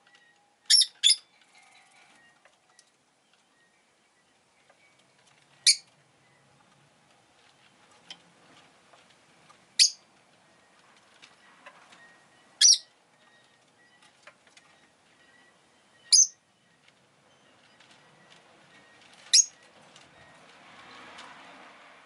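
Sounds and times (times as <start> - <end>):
bird chirping: 0.1 - 6.4, 9.8 - 19.6.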